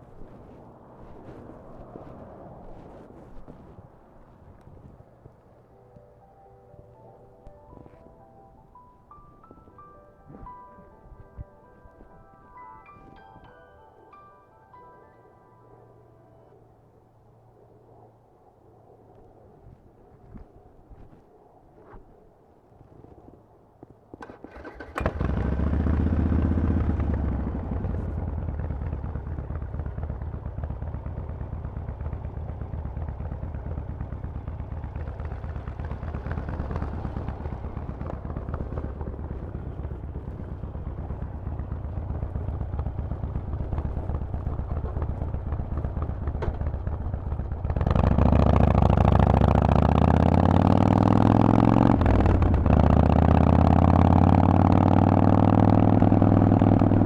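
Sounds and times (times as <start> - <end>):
motorcycle engine idling and revving: 24.2 - 57.0.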